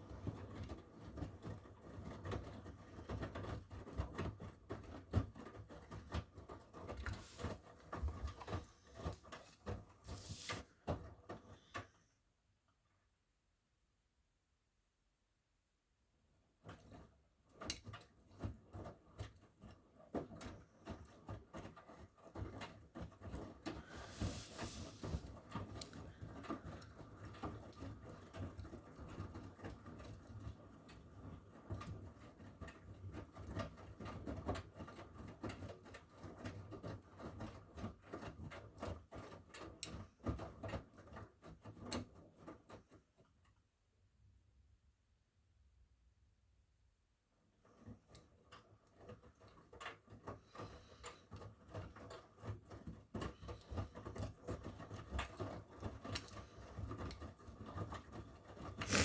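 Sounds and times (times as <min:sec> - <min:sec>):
laundry tumbling with knocks: 0:00.0 - 0:11.6
washing machine motor hum: 0:06.8 - 0:10.6, 0:23.8 - 0:27.4
brief hiss: 0:10.1 - 0:10.7, 0:24.0 - 0:25.2.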